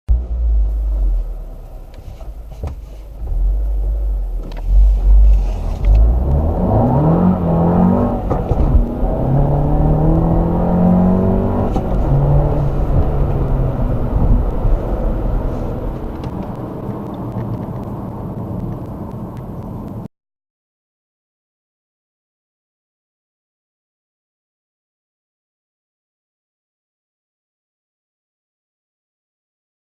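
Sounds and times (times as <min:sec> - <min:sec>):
car engine accelerating hard: 0:00.1 - 0:20.0.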